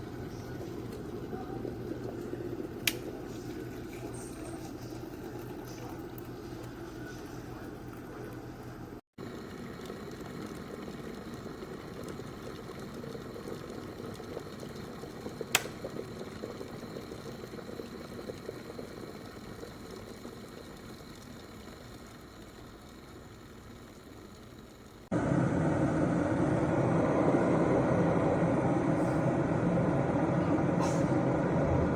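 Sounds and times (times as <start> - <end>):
kettle water bubbling: 0.0 - 31.9
kettle switch click: 2.8 - 3.0, 15.5 - 15.8.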